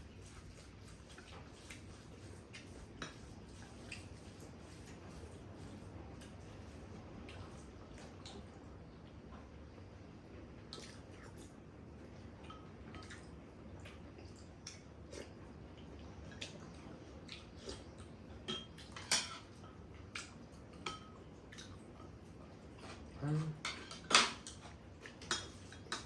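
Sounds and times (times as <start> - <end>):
cutlery clinking against dishes: 18.4 - 21.2, 22.9 - 26.0.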